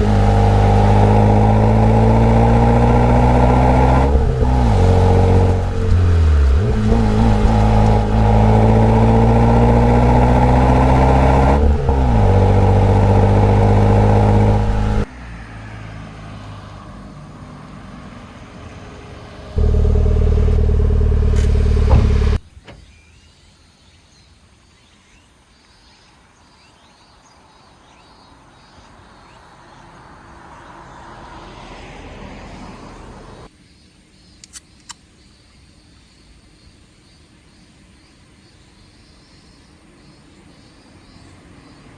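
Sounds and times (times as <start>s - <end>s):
car engine accelerating hard: 0.0s - 15.1s, 18.5s - 22.4s, 30.5s - 33.5s.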